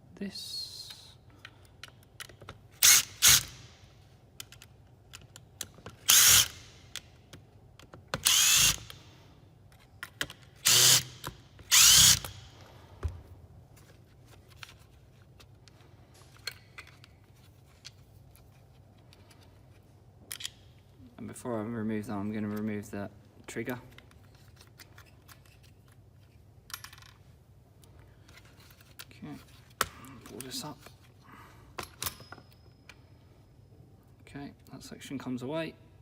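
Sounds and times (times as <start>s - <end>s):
power screwdriver whirring: 2.8s - 3.7s, 6.0s - 6.7s, 8.2s - 9.0s, 10.6s - 12.5s.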